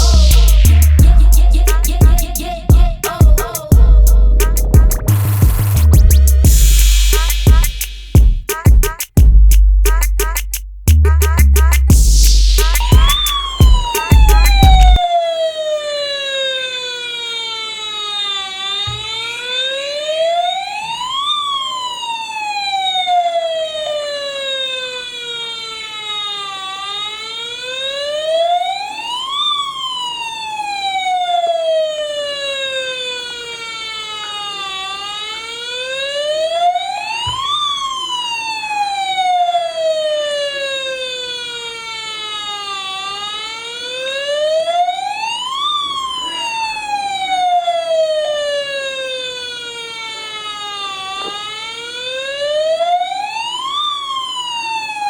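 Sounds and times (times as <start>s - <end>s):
toy truck electronic siren wailing: 12.8s - 55.0s.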